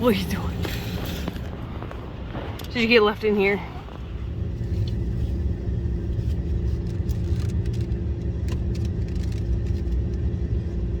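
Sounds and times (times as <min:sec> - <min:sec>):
car engine low rumble: 0:00.0 - 0:11.0
faint hum: 0:00.0 - 0:11.0.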